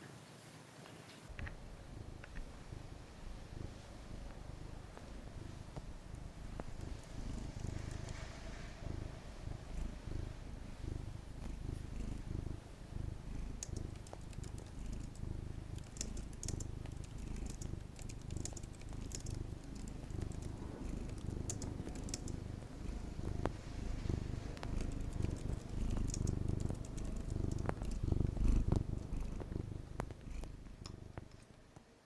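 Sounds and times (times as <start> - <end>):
light clicks: 1.3 - 8.9, 15.8 - 31.4
cat purring: 1.3 - 32.0.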